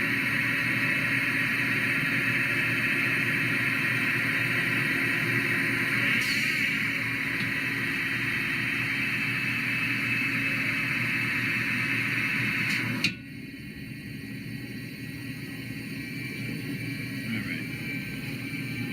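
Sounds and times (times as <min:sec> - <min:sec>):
lathe hissing: 0:00.0 - 0:13.1
machine hum: 0:00.0 - 0:18.9.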